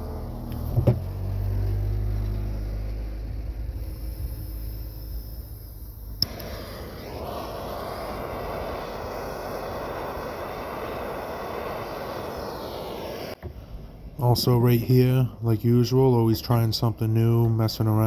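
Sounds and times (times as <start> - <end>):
torch flame rushing: 0.0 - 15.2
torch igniter click: 6.0 - 8.0.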